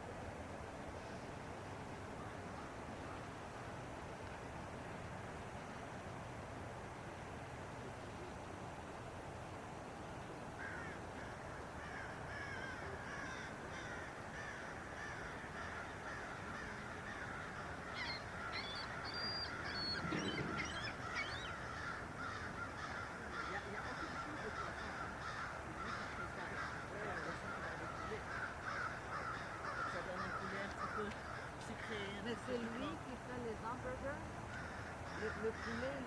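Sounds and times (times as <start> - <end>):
birds calling and chattering: 10.6 - 33.8, 34.5 - 36.0.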